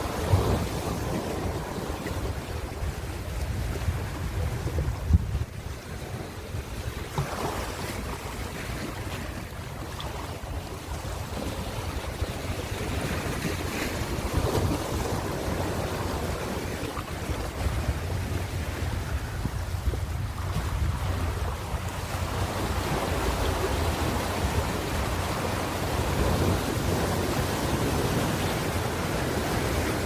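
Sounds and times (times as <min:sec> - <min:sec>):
wind buffeting microphone: 0:00.0 - 0:30.0
ocean surf breaking: 0:20.4 - 0:30.0.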